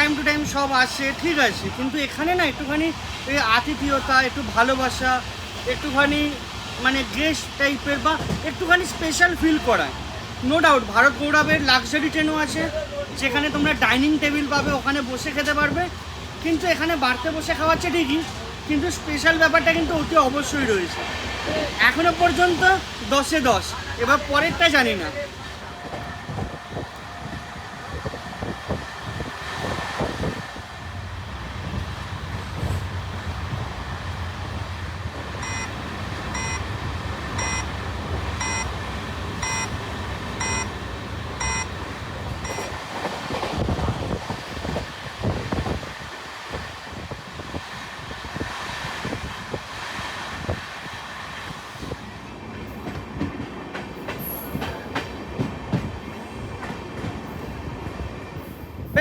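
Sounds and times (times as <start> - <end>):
train rumble: 0.0 - 59.0
short beeps: 35.4 - 36.7, 37.4 - 37.7, 38.4 - 38.7, 39.4 - 39.8, 40.4 - 40.7, 41.4 - 41.8.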